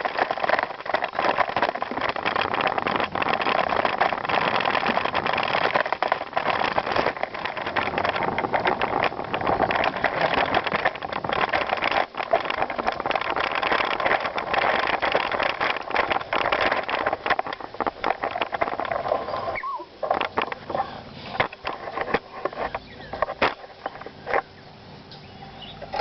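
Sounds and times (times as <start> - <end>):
bicycle clicks: 0.0 - 20.8, 21.4 - 24.5
bicycle tyres crunching on gravel: 0.0 - 24.6
brief squeak: 19.3 - 19.9.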